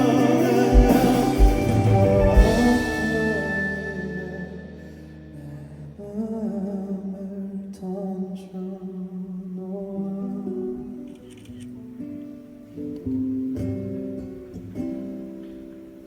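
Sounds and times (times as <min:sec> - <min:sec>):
held low note: 0:00.0 - 0:06.0
soft wavering melody: 0:00.0 - 0:06.0.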